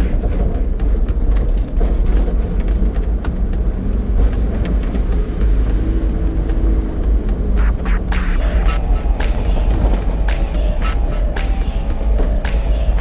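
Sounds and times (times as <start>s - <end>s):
van engine and tyres rumbling: 0.0s - 13.0s.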